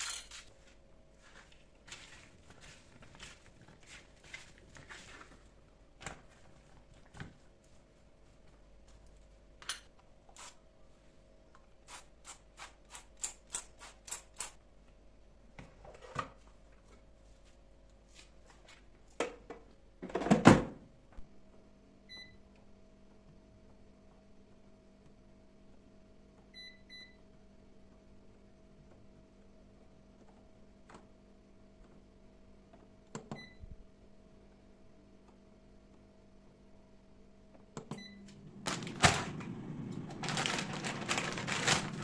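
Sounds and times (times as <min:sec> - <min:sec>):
appliance humming: 0:37.7 - 0:42.0.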